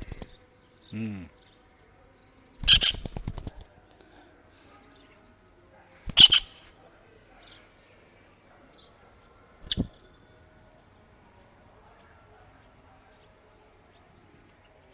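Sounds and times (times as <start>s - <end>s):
kingfisher harsh calls: 6.1s - 6.7s
faint high chirps: 9.6s - 10.3s.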